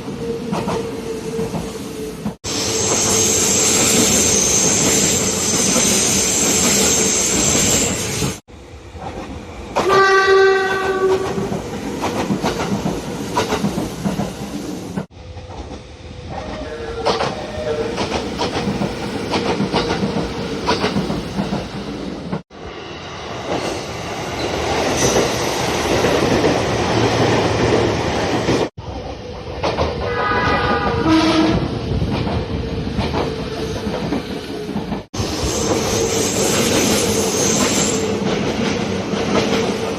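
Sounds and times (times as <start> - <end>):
train running past: 0.0 - 39.9
train horn: 9.8 - 11.4, 30.0 - 31.7.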